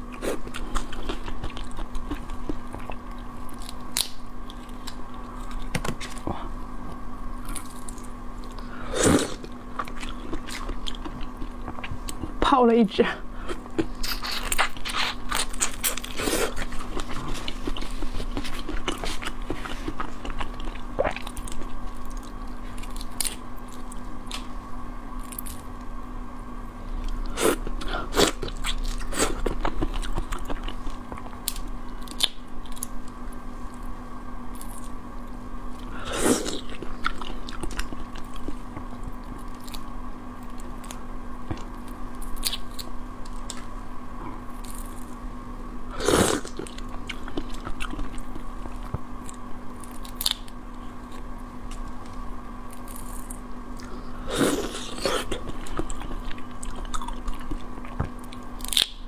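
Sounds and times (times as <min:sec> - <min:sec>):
faint steady hum: 0:00.0 - 0:59.0
wet crunchy chewing: 0:07.4 - 0:12.4, 0:13.4 - 0:24.4, 0:46.0 - 0:59.0.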